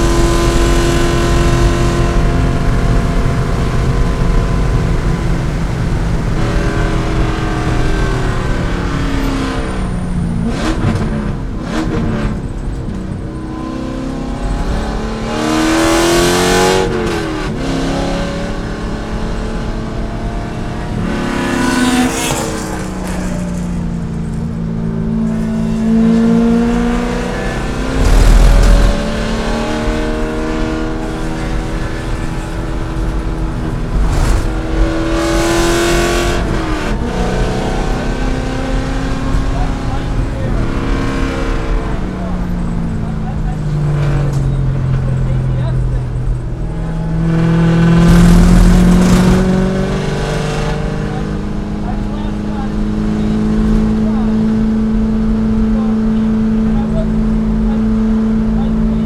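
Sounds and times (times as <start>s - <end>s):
car engine accelerating: 0.0s - 59.0s
rushes of noise: 25.2s - 42.2s, 46.2s - 50.7s.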